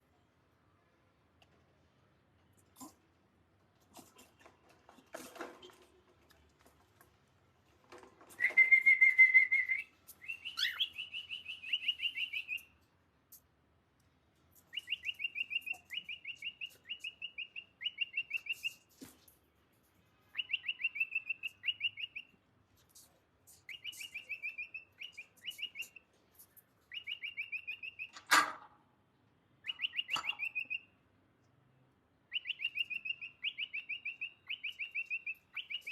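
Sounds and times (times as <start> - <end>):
cockatiel whistle-like call: 8.4 - 12.6, 29.7 - 30.8, 32.3 - 35.9.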